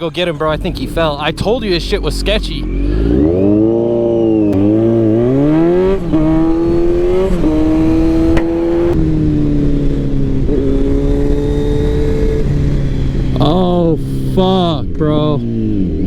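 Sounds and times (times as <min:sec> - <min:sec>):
motorcycle engine with gear changes: 0:02.5 - 0:16.0
rushing wind noise: 0:02.7 - 0:13.4.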